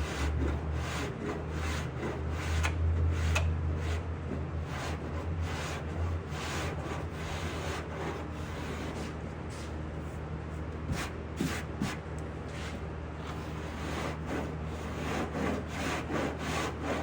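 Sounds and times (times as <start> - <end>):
hand file rasping body filler: 0.0 - 4.0, 13.4 - 17.0
low shop hum: 0.0 - 17.0.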